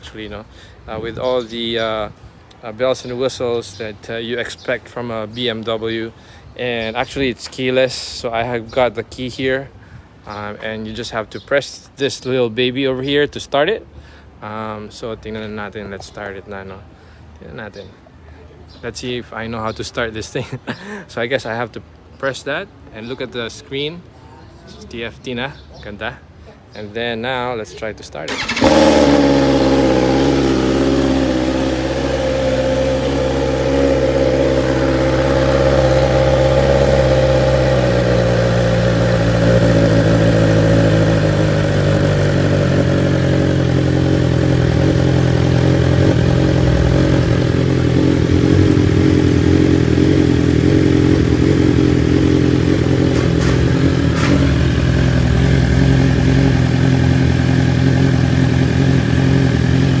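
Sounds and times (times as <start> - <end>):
motorcycle engine idling: 28.3 - 60.0.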